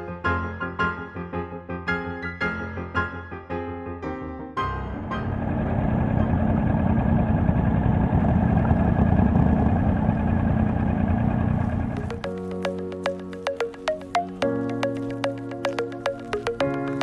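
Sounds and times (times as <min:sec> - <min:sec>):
motorcycle engine rumbling: 0:04.7 - 0:17.0.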